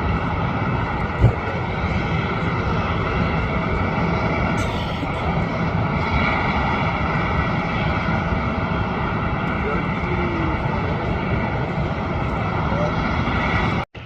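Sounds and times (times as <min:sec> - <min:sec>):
jet engines roaring: 0:00.0 - 0:14.0
low thump: 0:01.2 - 0:01.4.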